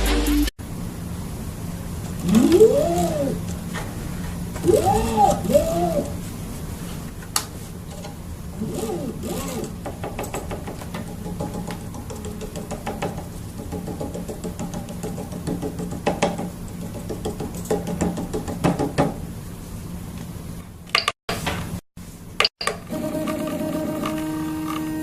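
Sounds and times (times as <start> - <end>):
stepper motors humming: 2.1 - 3.6, 4.4 - 6.2, 8.6 - 9.8
printer axes knocking and clicking: 9.7 - 19.2.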